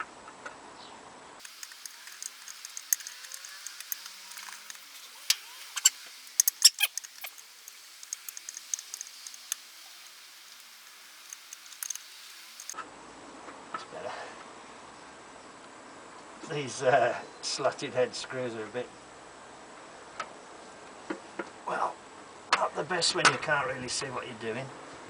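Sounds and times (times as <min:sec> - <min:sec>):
hand tools clicking and scraping: 0:01.4 - 0:12.8
sharp metallic clinks: 0:01.4 - 0:12.8.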